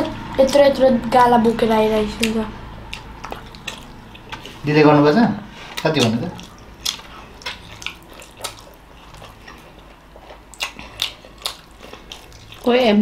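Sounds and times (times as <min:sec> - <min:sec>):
wet mouth clicks and smacks chewing: 0:02.9 - 0:04.6, 0:05.8 - 0:12.7.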